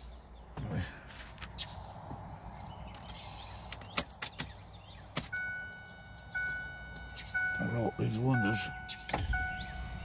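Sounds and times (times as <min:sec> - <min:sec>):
two-pitched electronic car chime: 0:05.3 - 0:10.0.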